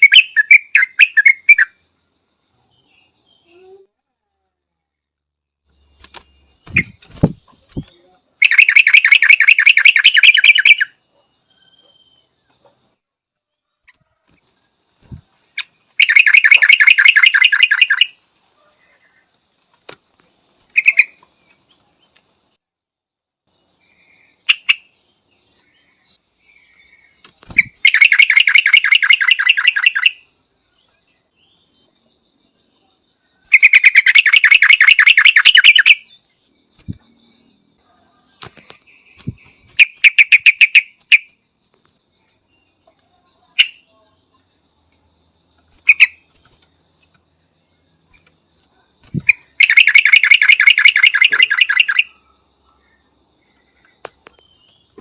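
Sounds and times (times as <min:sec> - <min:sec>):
bird rapid repeated calls: 0:00.0 - 0:01.8, 0:05.8 - 0:11.0, 0:15.0 - 0:18.2, 0:20.6 - 0:21.6, 0:24.4 - 0:25.0, 0:27.1 - 0:30.3, 0:33.4 - 0:36.2, 0:38.3 - 0:41.4, 0:43.5 - 0:43.9, 0:45.7 - 0:46.6, 0:49.0 - 0:52.2.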